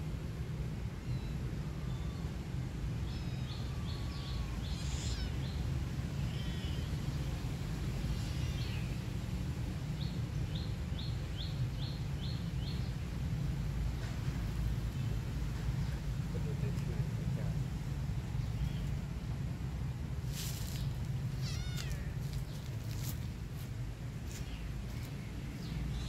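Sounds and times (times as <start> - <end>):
small bird chirping: 3.1 - 6.9
steady low rumble: 9.0 - 26.0.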